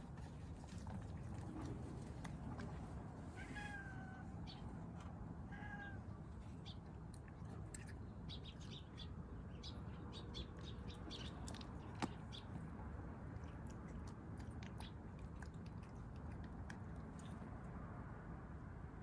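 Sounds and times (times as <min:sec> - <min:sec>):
kittens eating crunching: 0:00.0 - 0:03.2, 0:06.3 - 0:09.2, 0:10.1 - 0:17.9.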